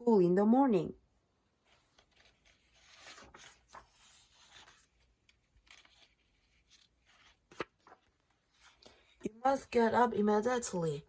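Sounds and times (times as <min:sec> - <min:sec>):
faint rustles and scrapes: 0:01.4 - 0:09.8.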